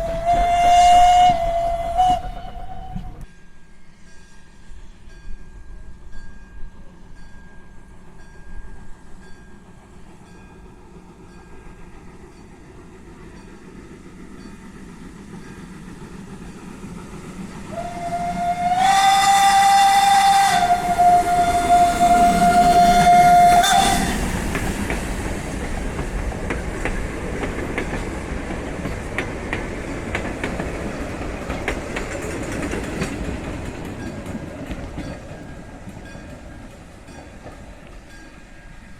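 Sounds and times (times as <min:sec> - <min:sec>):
steam locomotive whistle: 0:00.0 - 0:04.8, 0:17.6 - 0:24.8
train running: 0:00.0 - 0:38.9
wheels clicking on rail joints: 0:05.6 - 0:38.9.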